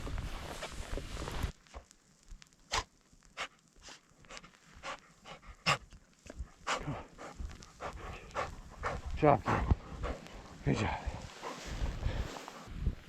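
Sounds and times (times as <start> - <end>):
dog panting: 2.7 - 12.7.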